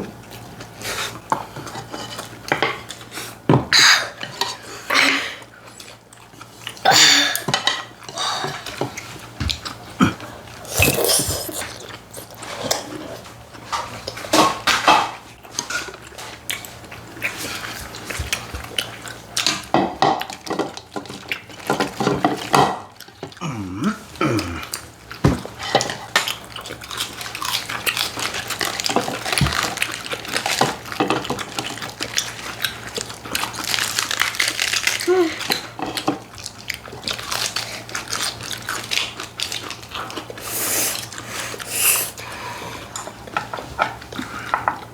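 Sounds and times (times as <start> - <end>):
chewing: 5.7 - 14.8, 20.3 - 44.9.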